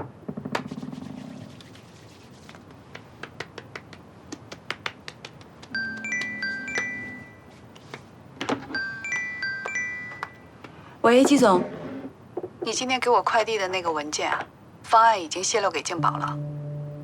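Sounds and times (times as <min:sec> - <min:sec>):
bell-like chime melody: 0:08.8 - 0:10.3.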